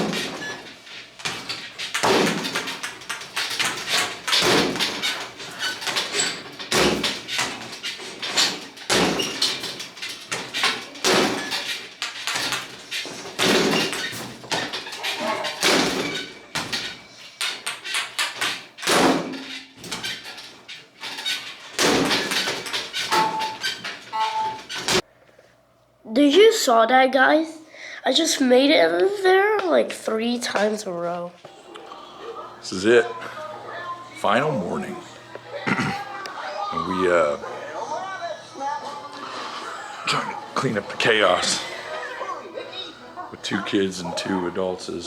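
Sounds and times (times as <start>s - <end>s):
ball bouncing and rattling: 0.0s - 25.0s
ball hitting backboard and rim: 1.2s - 20.2s, 21.7s - 25.0s.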